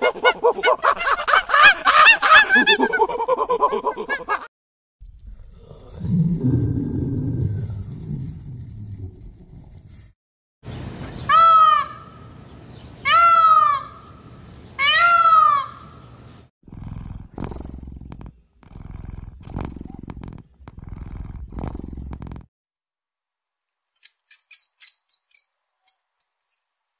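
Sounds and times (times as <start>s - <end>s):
tiger growling: 5.2s - 10.1s, 16.7s - 22.3s
peacock calling: 11.0s - 12.3s, 13.0s - 16.2s.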